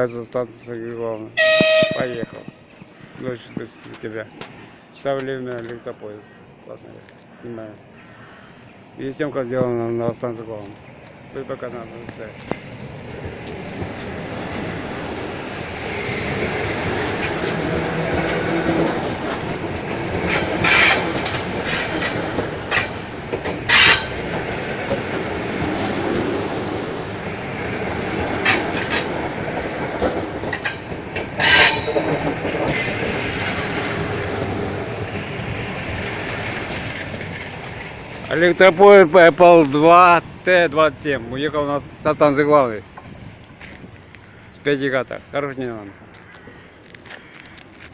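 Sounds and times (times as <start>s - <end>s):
train rumble: 0.0s - 8.0s, 8.8s - 47.9s
train wheels clattering over rail joints: 12.0s - 39.9s.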